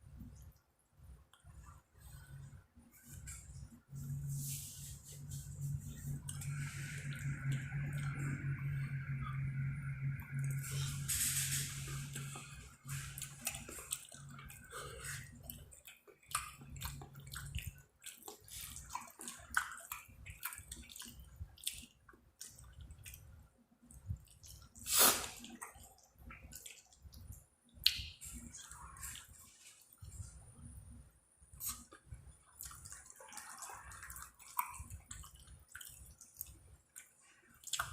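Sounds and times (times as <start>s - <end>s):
person chewing food: 5.1s - 8.9s, 11.9s - 30.4s, 31.6s - 37.9s
wet mouth smacks and clicks: 26.6s - 28.4s, 34.5s - 37.9s.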